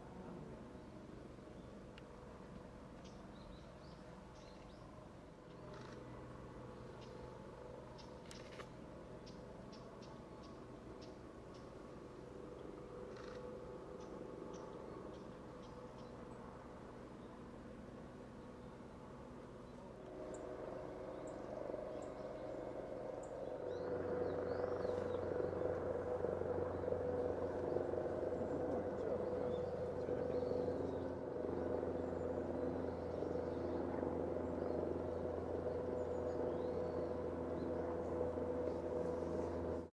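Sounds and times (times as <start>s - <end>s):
machine drone with low hum: 0.0s - 39.9s.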